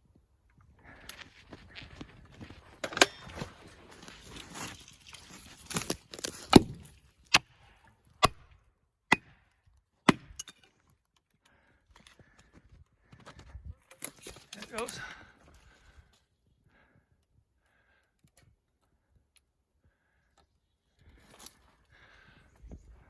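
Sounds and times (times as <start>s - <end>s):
tree rustling and cracking: 1.4s - 7.4s, 13.8s - 16.0s.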